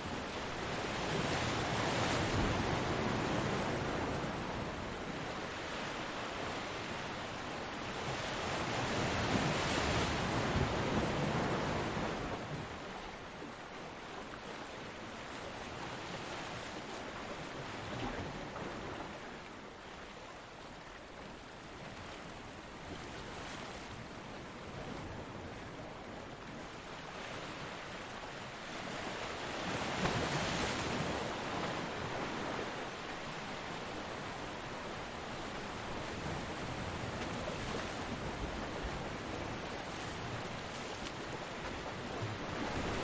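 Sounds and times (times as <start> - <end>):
ocean waves breaking: 26.4 - 43.0
rushing water: 26.8 - 43.0.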